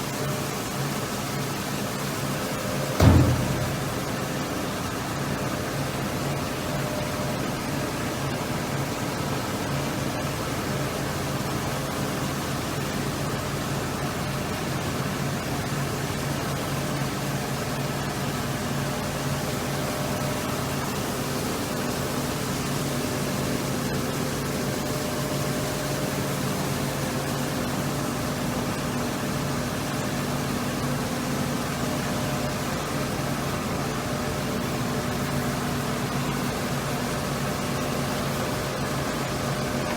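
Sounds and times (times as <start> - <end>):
machinery hum with hiss: 0.0 - 39.9.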